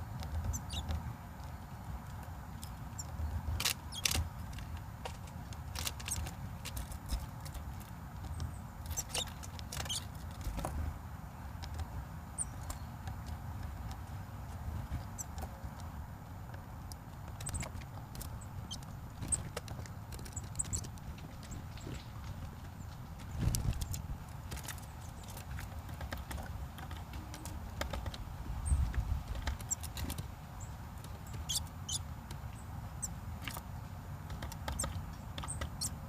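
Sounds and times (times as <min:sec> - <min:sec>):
bird peeping: 0:00.4 - 0:01.0, 0:08.3 - 0:10.4, 0:12.3 - 0:13.0, 0:14.9 - 0:15.5, 0:17.2 - 0:25.4, 0:27.1 - 0:33.6, 0:34.4 - 0:36.0
beak tapping on food: 0:16.5 - 0:30.3, 0:34.2 - 0:36.0.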